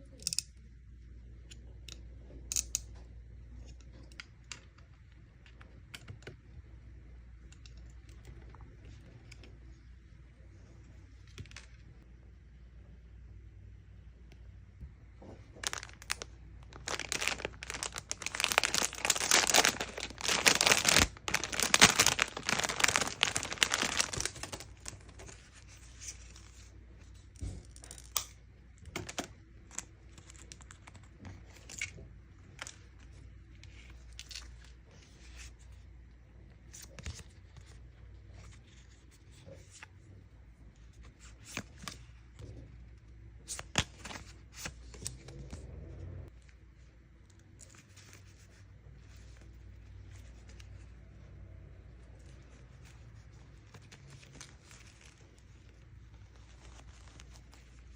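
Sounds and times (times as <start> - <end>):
packaging torn and crinkled: 15.6 - 25.6.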